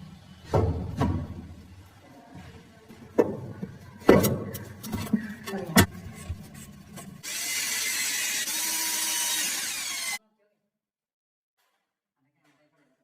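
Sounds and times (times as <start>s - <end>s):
electric drill drilling: 7.2s - 10.2s.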